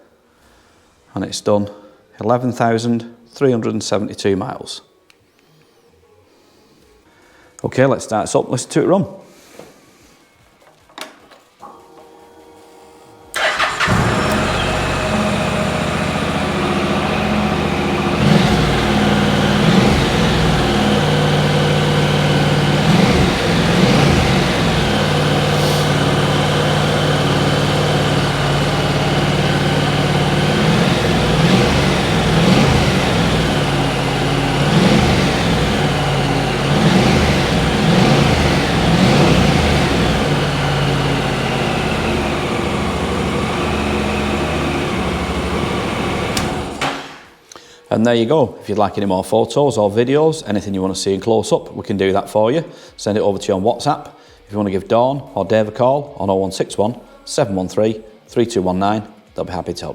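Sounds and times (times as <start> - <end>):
motorcycle engine starting: 13.3 - 47.3
motorcycle engine idling with blips: 13.4 - 46.9.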